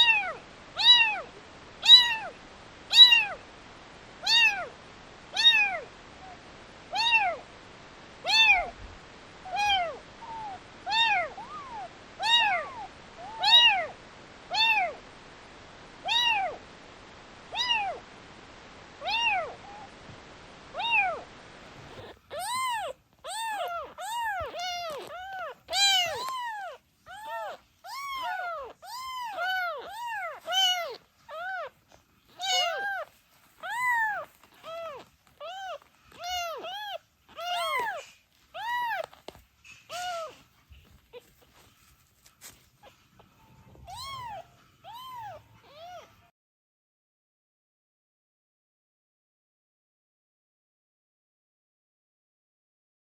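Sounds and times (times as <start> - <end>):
kitten meowing: 0.0 - 2.3, 2.9 - 3.4, 4.2 - 4.7, 5.4 - 5.8, 6.9 - 7.4, 8.3 - 8.7, 9.5 - 15.0, 16.0 - 16.6, 17.6 - 18.0, 19.0 - 19.9, 20.8 - 21.2, 21.9 - 39.3, 39.9 - 41.5, 43.6 - 46.3.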